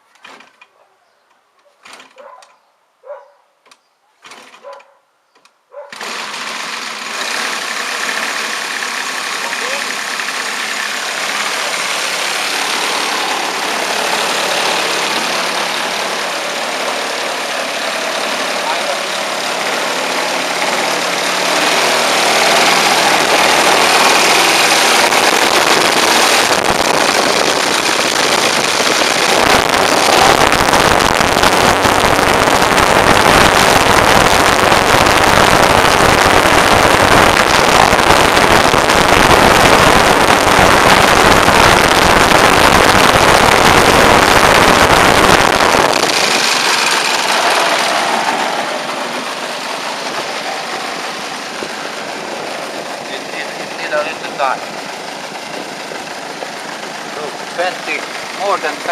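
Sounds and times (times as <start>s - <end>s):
model plane engine and propeller: 5.9s - 31.6s, 43.8s - 58.9s.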